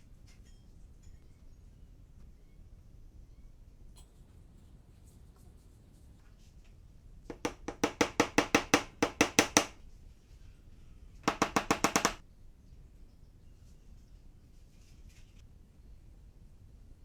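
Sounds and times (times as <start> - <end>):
rapid evenly spaced knocks: 7.3 - 9.8, 11.2 - 12.2.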